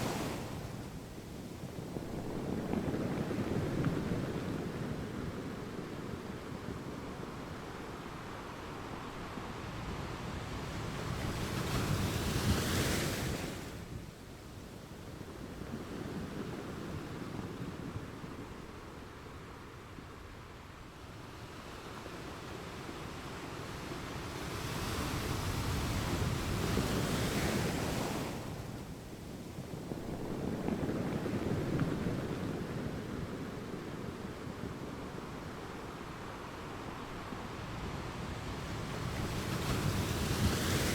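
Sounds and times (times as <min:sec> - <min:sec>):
ocean waves breaking on shore: 0:00.0 - 0:06.7
low rumble of surf: 0:00.0 - 0:40.9.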